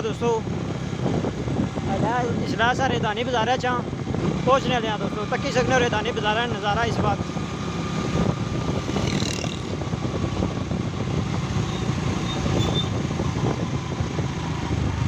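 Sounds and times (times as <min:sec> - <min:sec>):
vehicle engine and road rumble: 0:00.0 - 0:15.0.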